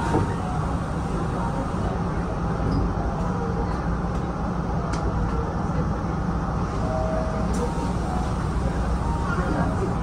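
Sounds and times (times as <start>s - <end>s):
electric train rumbling: 0.0s - 10.0s.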